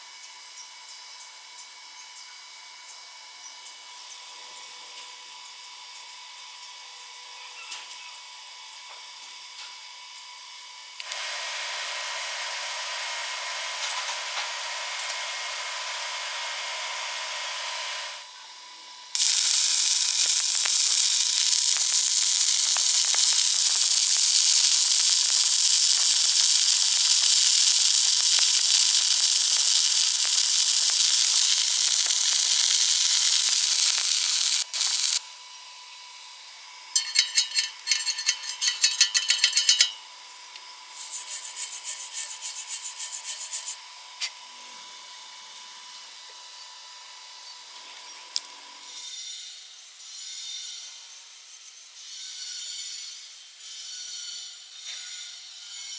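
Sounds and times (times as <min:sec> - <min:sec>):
welding arc hissing and crackling: 0:11.0 - 0:18.2, 0:19.2 - 0:35.2, 0:37.0 - 0:39.9, 0:40.9 - 0:43.8
rhythmic scraping strokes: 0:19.2 - 0:35.2, 0:37.0 - 0:40.0, 0:40.9 - 0:43.8.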